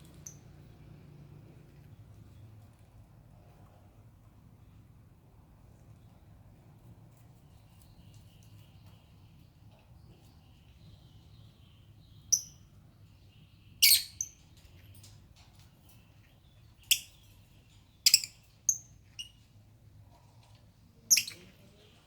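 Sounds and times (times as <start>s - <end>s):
lovebirds chirping: 0.0s - 1.0s, 7.1s - 22.0s
soft bird chattering: 16.7s - 19.5s, 21.0s - 22.0s.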